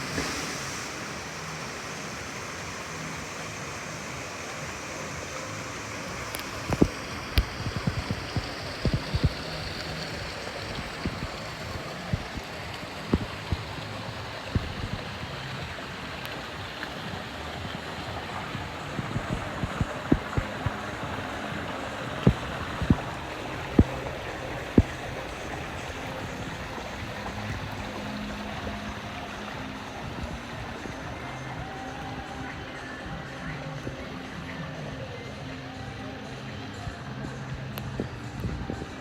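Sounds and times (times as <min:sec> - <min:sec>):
running water rushing: 0:00.0 - 0:39.0.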